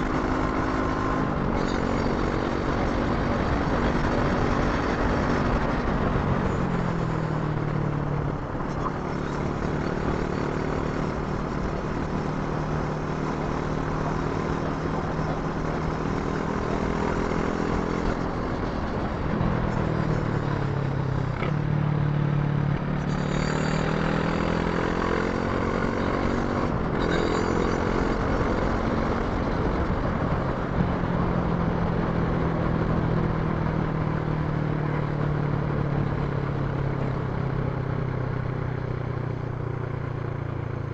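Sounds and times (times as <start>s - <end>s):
rushing wind: 0.0s - 22.0s
motorcycle engine under way: 0.0s - 40.9s
road noise: 0.0s - 40.9s.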